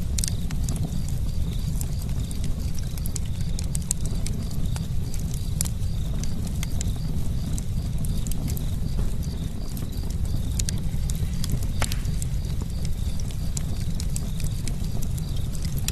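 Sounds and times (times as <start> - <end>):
campfire crackling and popping: 0.0 - 15.9
low rumble of fire: 0.0 - 15.9.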